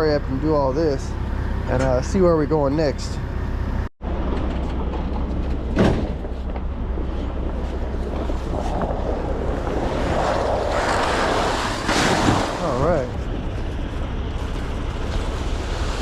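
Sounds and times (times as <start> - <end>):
low rumble: 0.0 - 16.0
wind rushing over microphone: 6.2 - 16.0.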